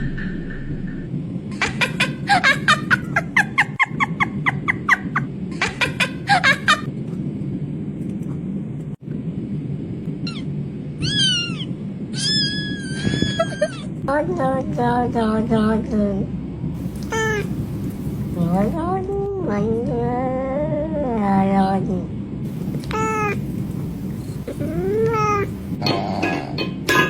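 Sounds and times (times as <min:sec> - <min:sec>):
cat meowing: 0:16.8 - 0:18.7, 0:22.5 - 0:25.8
cat chirping: 0:16.8 - 0:18.8, 0:22.5 - 0:25.8.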